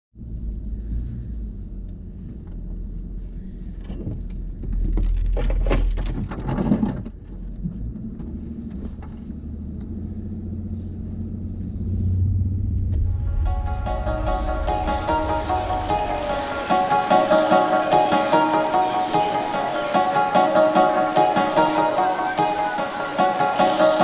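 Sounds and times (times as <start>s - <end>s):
car engine and road rumble: 0.1s - 16.7s.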